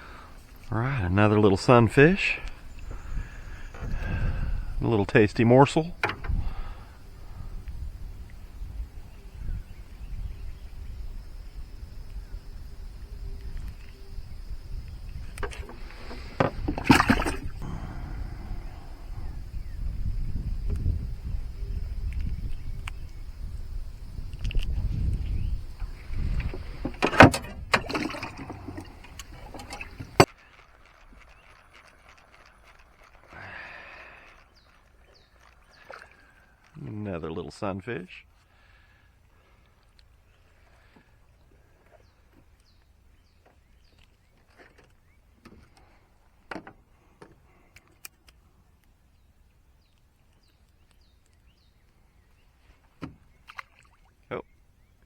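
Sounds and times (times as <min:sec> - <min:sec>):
handling noise in a boat: 0:00.0 - 0:55.0
knocks and clicks in a boat: 0:01.3 - 0:06.9, 0:14.8 - 0:17.6, 0:24.3 - 0:30.3, 0:42.2 - 0:48.3, 0:52.9 - 0:54.0
sharp knocks in a boat: 0:15.4 - 0:17.5.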